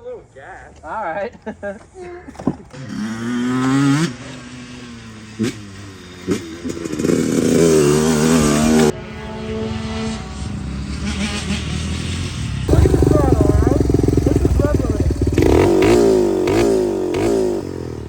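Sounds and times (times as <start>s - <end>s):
dirt bike engine revving: 2.7s - 18.0s.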